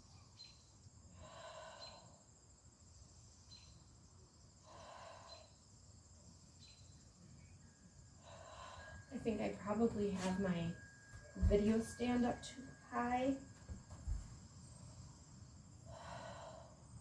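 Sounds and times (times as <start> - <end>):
insects chirring: 0.0 - 17.0
faint breaths: 1.1 - 2.4, 4.6 - 5.9, 8.1 - 17.0.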